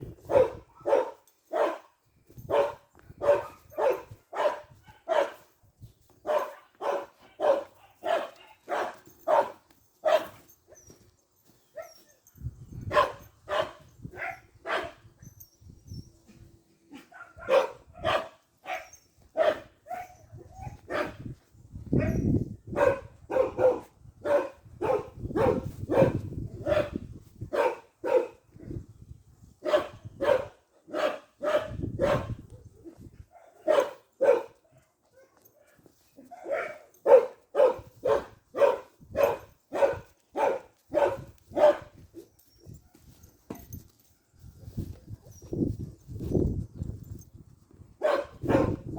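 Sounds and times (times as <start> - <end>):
dog barking: 0.2 - 5.5, 6.2 - 10.4, 12.9 - 15.0, 16.9 - 21.2, 22.0 - 28.4, 29.6 - 32.4, 33.3 - 42.0, 48.0 - 48.9.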